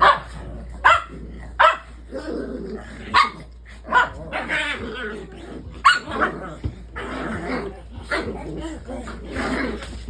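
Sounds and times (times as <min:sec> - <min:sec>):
dog barking: 0:00.0 - 0:01.9, 0:03.1 - 0:04.5.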